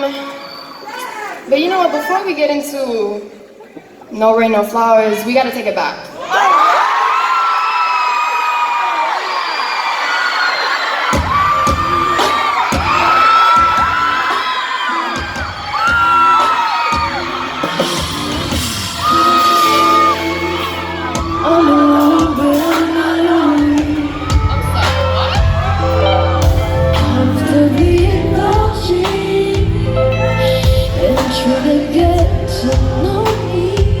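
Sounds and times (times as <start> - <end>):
audience whooping and yelling: 0.0 - 1.6, 6.1 - 28.6, 30.1 - 34.0
live band playing: 11.2 - 34.0
woman singing slow melody: 19.1 - 24.5, 26.0 - 34.0.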